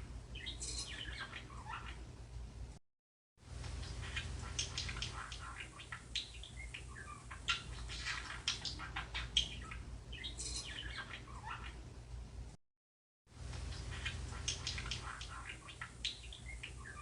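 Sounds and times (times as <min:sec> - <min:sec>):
small birds chirping: 0:00.0 - 0:02.1, 0:03.5 - 0:11.9, 0:13.4 - 0:17.0
steady low hum: 0:03.5 - 0:12.6.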